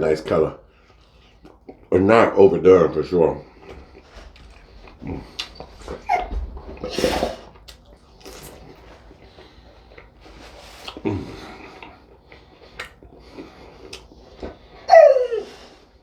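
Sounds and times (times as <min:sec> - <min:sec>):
person chewing: 0:00.8 - 0:01.9, 0:03.5 - 0:14.9.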